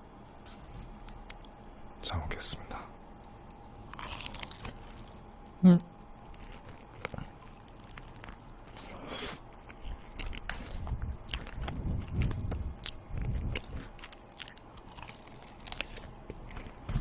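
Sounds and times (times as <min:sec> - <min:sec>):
person chewing crunchy food: 0:03.3 - 0:05.6, 0:06.2 - 0:17.0.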